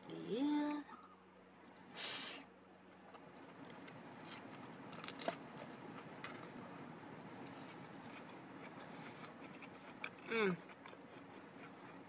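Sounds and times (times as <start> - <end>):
faint chewing with crunches: 2.9 - 12.0
biting crisp tostada: 3.0 - 12.0.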